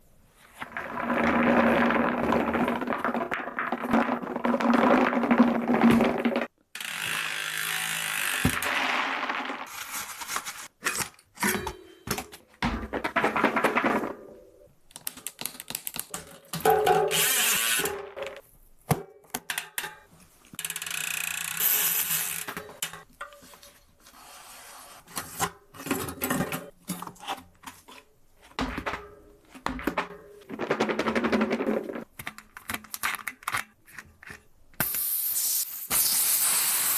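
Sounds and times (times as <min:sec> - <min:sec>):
bicycle wheel grinding and rattling: 0:00.6 - 0:10.7, 0:16.6 - 0:18.2, 0:20.6 - 0:23.0.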